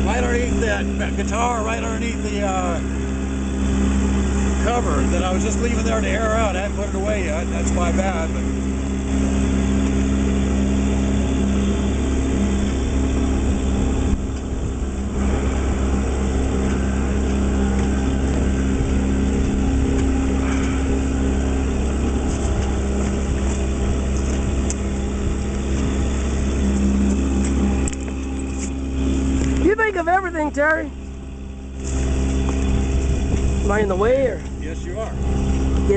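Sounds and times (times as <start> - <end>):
boat motor humming: 0.0 - 35.9
wind buffeting microphone: 8.1 - 30.0, 30.6 - 35.9.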